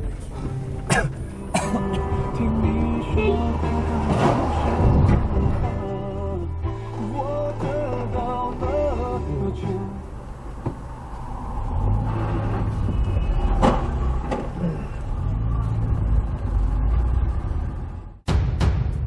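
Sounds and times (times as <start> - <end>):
vehicle low rumble: 0.0 - 18.3.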